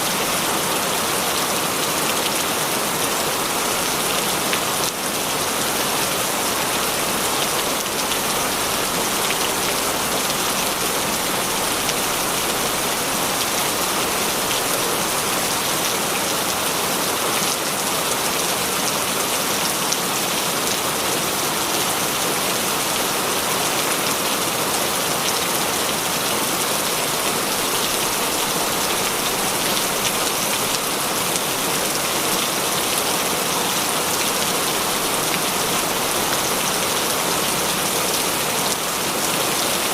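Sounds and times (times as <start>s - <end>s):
heavy rain: 0.0s - 39.9s
raindrops pattering on surface: 6.8s - 16.6s.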